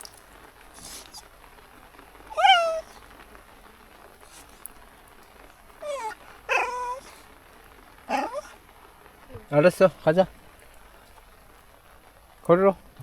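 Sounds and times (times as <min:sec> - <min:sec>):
dog whining: 0:00.8 - 0:01.3, 0:02.3 - 0:03.2, 0:05.8 - 0:07.3, 0:08.1 - 0:08.6.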